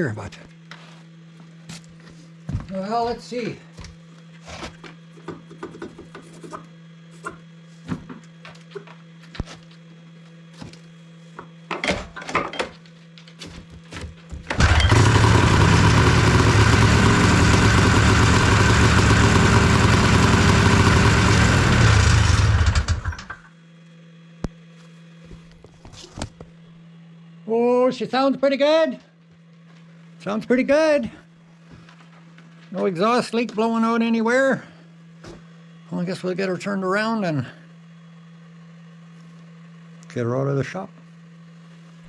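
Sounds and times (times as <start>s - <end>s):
small engine running: 14.3s - 23.5s.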